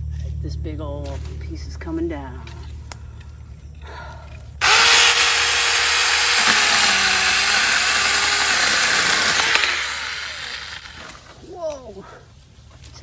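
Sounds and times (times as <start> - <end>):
mini chainsaw cutting branch: 4.6 - 11.4.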